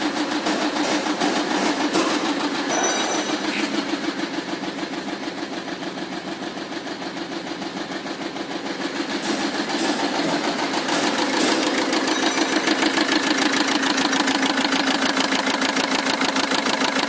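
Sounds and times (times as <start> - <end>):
engine cranking on starter: 6.6 - 17.0.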